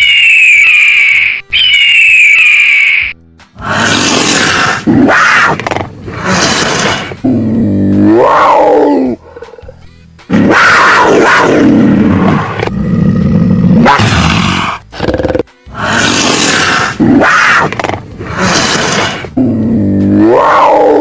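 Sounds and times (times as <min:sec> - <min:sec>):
music: 0:00.0 - 0:21.0
loud animal roars: 0:03.6 - 0:09.7, 0:10.3 - 0:21.0.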